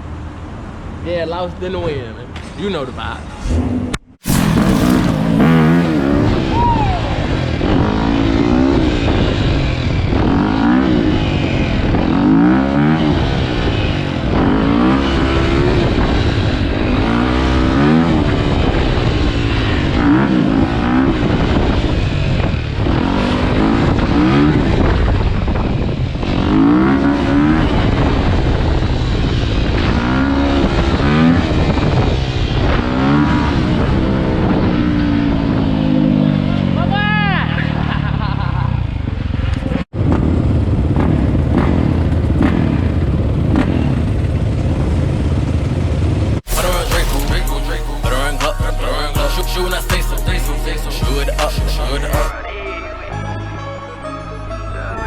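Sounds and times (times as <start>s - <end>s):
dirt bike engines revving: 3.4s - 25.6s, 46.5s - 52.3s.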